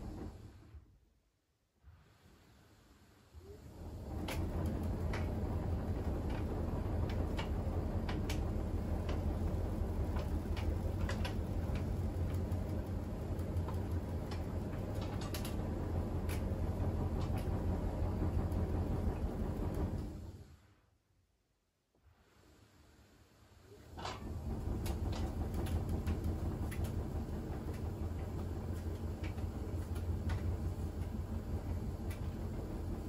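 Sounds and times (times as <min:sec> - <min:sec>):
washing machine drum hum: 0:00.0 - 0:00.8, 0:03.4 - 0:20.5, 0:23.8 - 0:33.0
light clicks and ticks: 0:06.0 - 0:15.6, 0:24.8 - 0:32.7.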